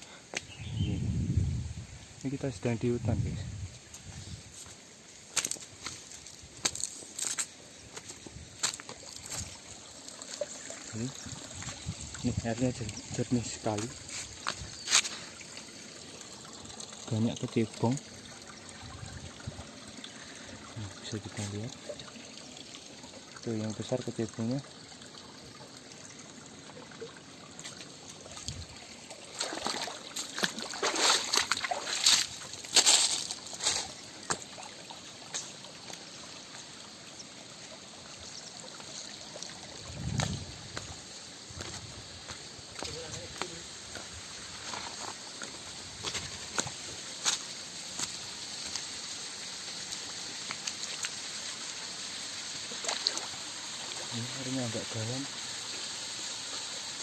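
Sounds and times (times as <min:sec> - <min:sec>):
stream water trickling: 0:00.0 - 0:57.0
footsteps on wet stones in water: 0:03.9 - 0:09.6, 0:13.8 - 0:15.4, 0:29.3 - 0:34.5, 0:41.6 - 0:48.8
splashing in shallow water: 0:27.7 - 0:35.5, 0:52.7 - 0:54.4.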